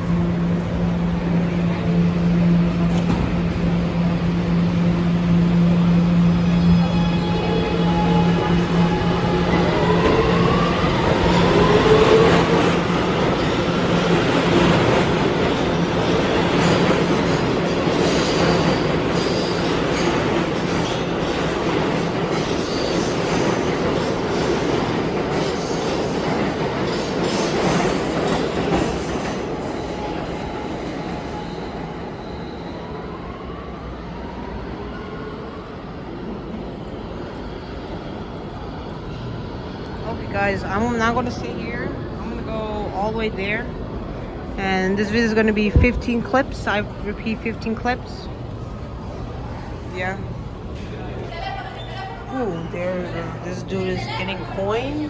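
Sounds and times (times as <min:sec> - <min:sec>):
wheels squealing on rails: 0:05.5 - 0:33.3.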